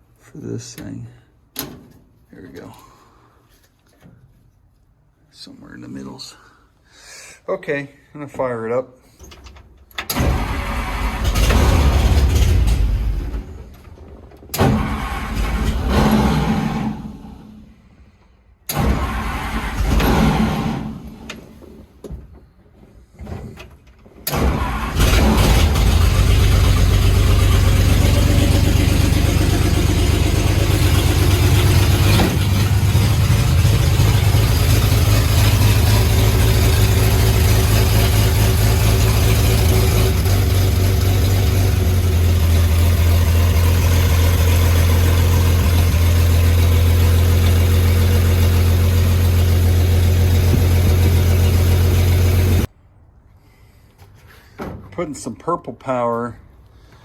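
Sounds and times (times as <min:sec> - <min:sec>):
engine cranking: 0:09.2 - 0:17.0, 0:18.7 - 0:21.4, 0:23.8 - 0:52.7
engine idling: 0:24.3 - 0:52.7.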